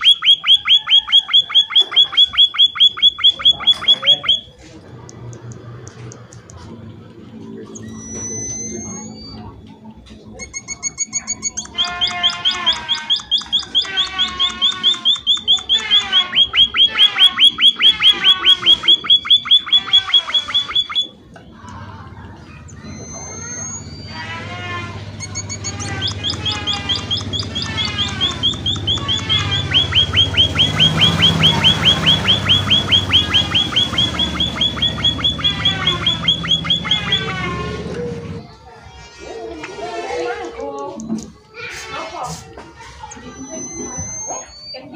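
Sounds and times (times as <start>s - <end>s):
finch chirping rapidly: 0.0s - 4.5s, 10.6s - 21.1s, 25.2s - 37.4s.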